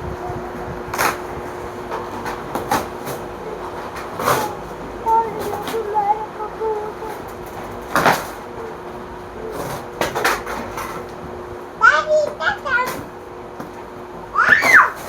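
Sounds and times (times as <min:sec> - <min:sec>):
steady hum: 0:00.0 - 0:15.0
faint voice: 0:03.4 - 0:07.3, 0:11.8 - 0:13.0.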